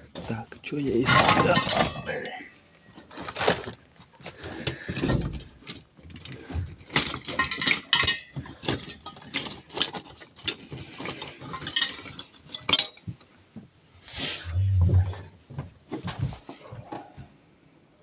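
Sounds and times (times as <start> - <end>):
hard objects clattering: 0.1 - 13.1.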